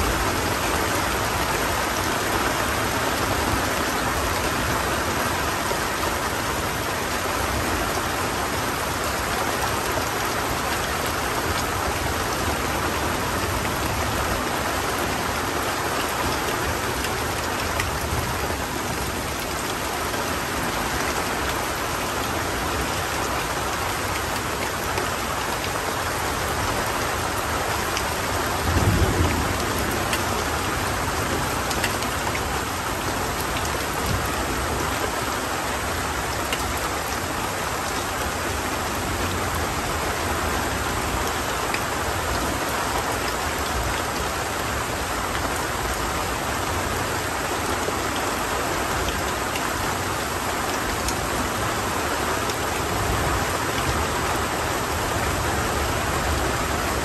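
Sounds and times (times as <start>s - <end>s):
heavy rain falling: 0.0s - 57.0s
low rumble of thunder: 28.5s - 31.8s.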